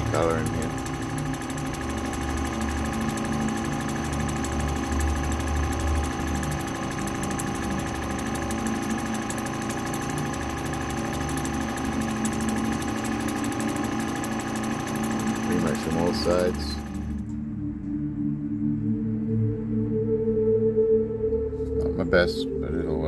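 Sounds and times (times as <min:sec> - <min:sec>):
grinding wheel motor hum: 0:00.0 - 0:17.4
low drone of grinding: 0:00.0 - 0:17.8.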